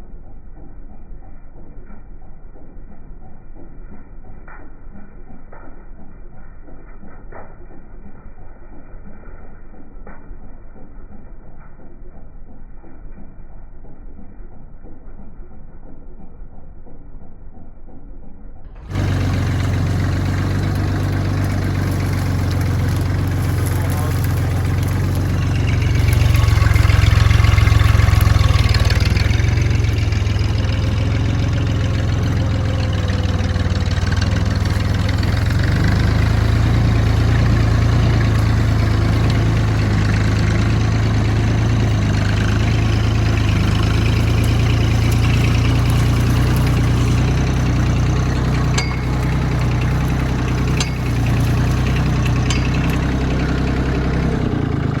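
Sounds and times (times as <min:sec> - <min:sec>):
tractor engine humming: 0:18.7 - 0:55.0.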